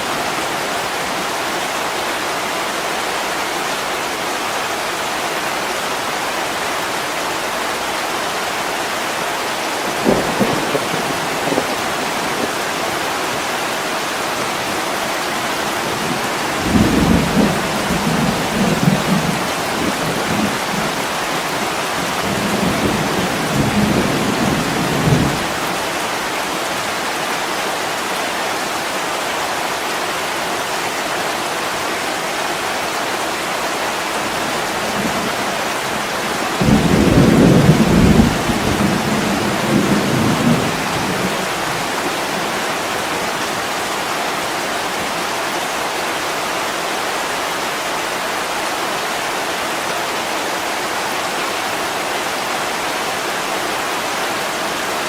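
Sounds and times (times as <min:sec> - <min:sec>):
heavy rain: 0:00.0 - 0:55.0
thunder rumbling: 0:09.9 - 0:12.7, 0:34.7 - 0:43.1.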